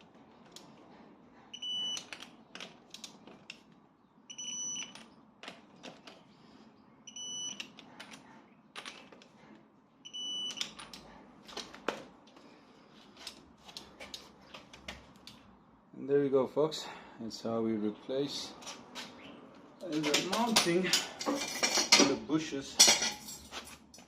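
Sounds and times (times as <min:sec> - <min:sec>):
torque wrench high beeps: 0:04.3 - 0:04.9, 0:07.1 - 0:07.6, 0:10.0 - 0:10.6.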